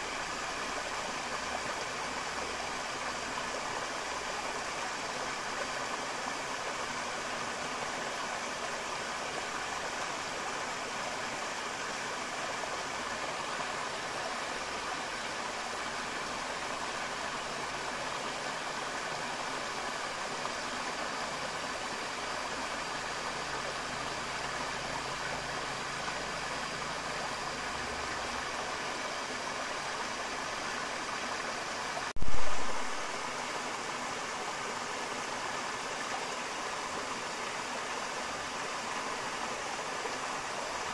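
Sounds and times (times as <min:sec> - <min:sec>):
river water rushing: 0:00.0 - 0:40.9
loud thump with low rumble: 0:32.2 - 0:33.0.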